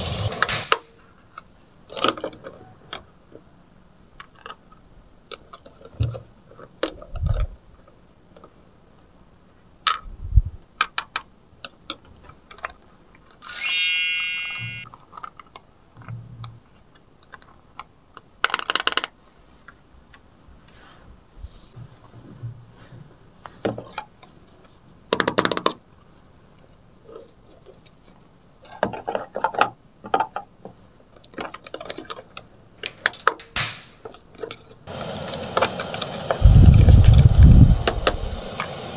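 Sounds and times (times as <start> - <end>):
bright ringing clink: 13.4 - 14.8.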